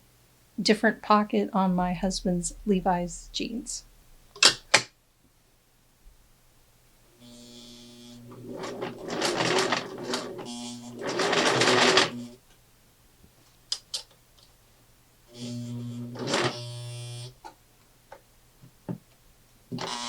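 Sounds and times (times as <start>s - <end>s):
sewing machine stitching: 8.2s - 12.4s, 16.1s - 16.8s.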